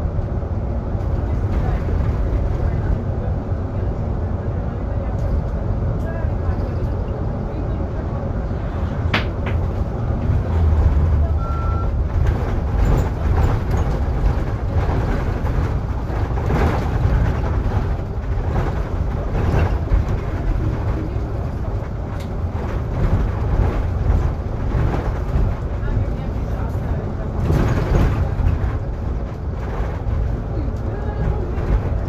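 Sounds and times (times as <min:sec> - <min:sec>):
bus engine and road rumble: 0:00.0 - 0:32.0
electronic beep: 0:11.4 - 0:11.9.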